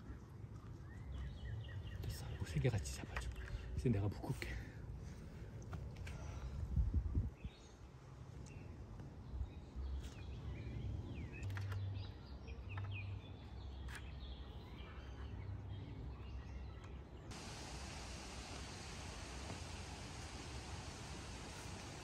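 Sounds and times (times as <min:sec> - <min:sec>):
birds chirping: 0:00.0 - 0:04.8
steady hiss: 0:17.3 - 0:22.0.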